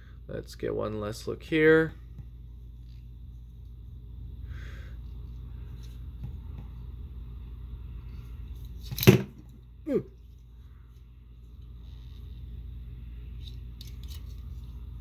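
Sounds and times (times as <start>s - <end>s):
steady low hum: 0.0s - 15.0s
man saying ooh: 9.9s - 10.1s
faint handling noises: 10.2s - 15.0s.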